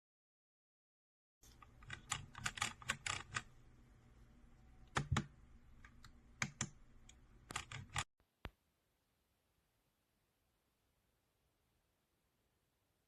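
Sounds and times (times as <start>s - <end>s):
clicky keyboard typing: 1.6s - 3.5s, 4.9s - 8.1s.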